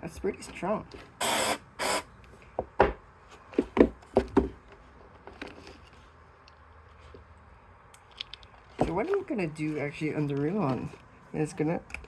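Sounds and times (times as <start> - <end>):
short hissing bursts: 1.2 - 2.1.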